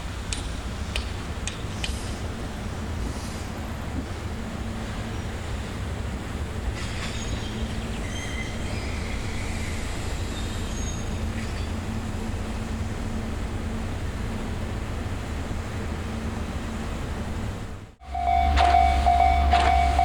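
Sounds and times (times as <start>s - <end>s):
electric train rumbling on rails: 0.0s - 20.0s
wheel squeals: 6.7s - 11.9s, 18.0s - 20.0s.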